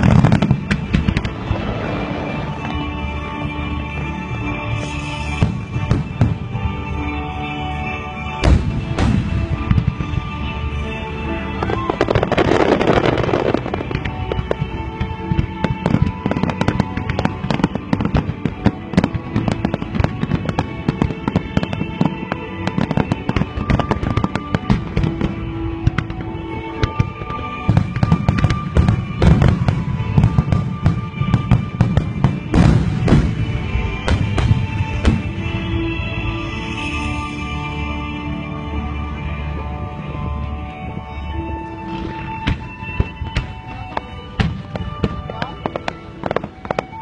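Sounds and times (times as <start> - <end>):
deep booms of fireworks shells: 0.0 - 2.9, 8.4 - 10.6, 11.6 - 37.5
fireworks popping and crackling: 0.0 - 38.8, 39.5 - 47.0
music: 0.0 - 47.0.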